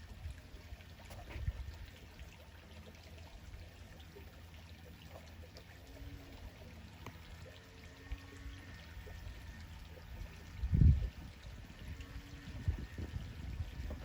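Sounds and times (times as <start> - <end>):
creek water trickling: 0.0 - 14.0.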